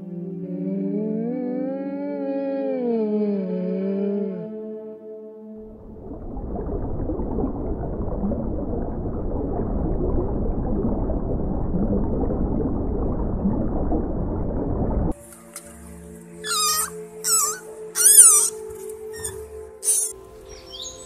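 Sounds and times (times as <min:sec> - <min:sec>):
aquarium water bubbling: 0:05.6 - 0:15.2.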